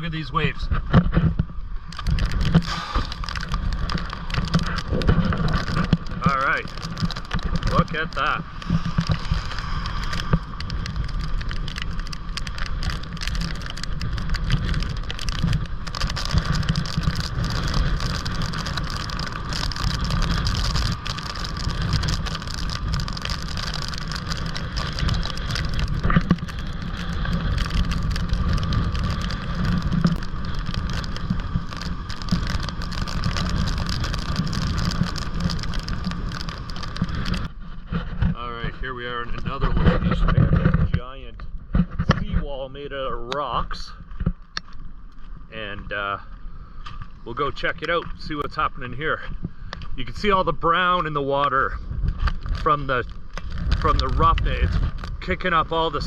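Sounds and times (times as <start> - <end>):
rough surf: 0.0 - 44.4
storm wind buffeting microphone: 0.0 - 44.4, 45.5 - 56.0.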